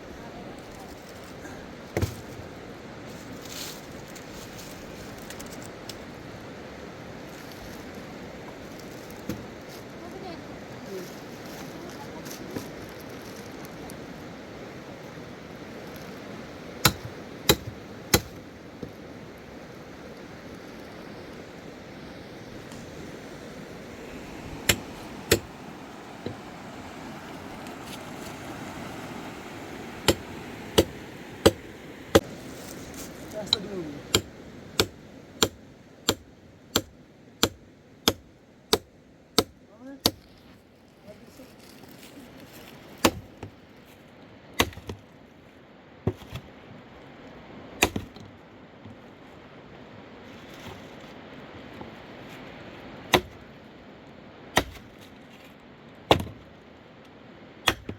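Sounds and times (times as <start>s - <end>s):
river rushing: 13.5s - 35.4s
axe chopping wood: 16.8s - 18.4s, 24.6s - 25.6s, 30.0s - 32.3s, 33.5s - 36.2s, 36.8s - 40.2s, 44.6s - 45.0s, 47.8s - 48.2s, 53.1s - 53.4s, 54.6s - 54.9s, 56.1s - 56.4s, 57.6s - 57.9s
tool striking wood: 24.6s - 25.5s, 30.0s - 32.3s, 53.1s - 53.4s, 56.1s - 56.4s, 57.7s - 57.9s.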